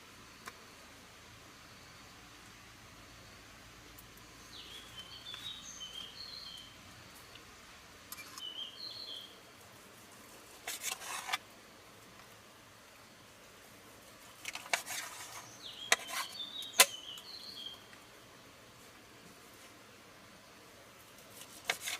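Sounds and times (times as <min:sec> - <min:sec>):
faint steady hiss: 0:00.0 - 0:21.9
bird chirping: 0:04.2 - 0:07.4, 0:08.1 - 0:09.4, 0:14.5 - 0:18.1.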